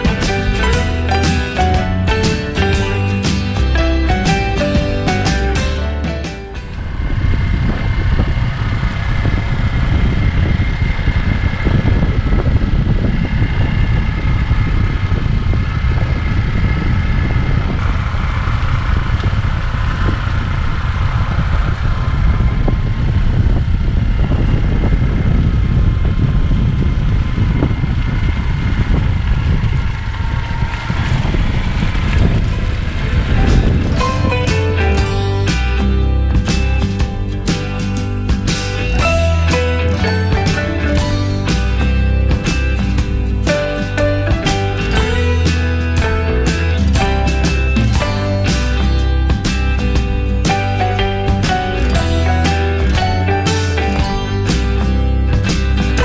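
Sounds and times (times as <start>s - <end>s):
motorbike engine running: 0.0s - 56.0s
wind noise on microphone: 0.0s - 56.0s.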